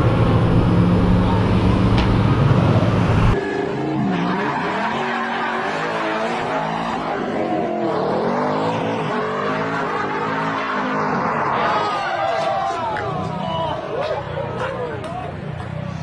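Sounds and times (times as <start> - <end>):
low drone: 0.0 - 3.5
car engine revving: 0.0 - 12.0
tyres skidding: 0.0 - 16.0.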